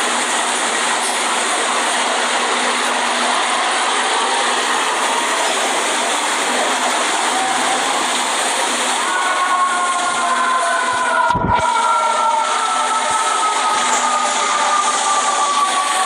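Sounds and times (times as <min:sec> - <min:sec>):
train rumbling roar: 0:00.0 - 0:16.0.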